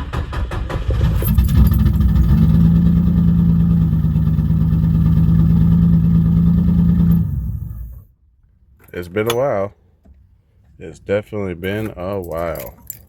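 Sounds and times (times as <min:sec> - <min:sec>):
car engine cranking on starter: 0:00.0 - 0:04.8
car engine running: 0:01.2 - 0:08.1.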